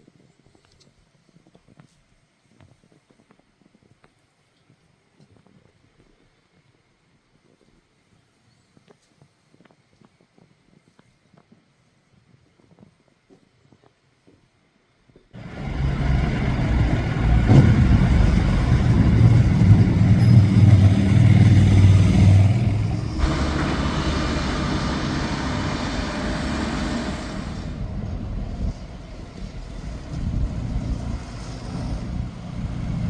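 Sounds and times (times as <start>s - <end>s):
motorcycle engines running: 15.4s - 27.9s
hissy passing noise: 15.4s - 33.0s.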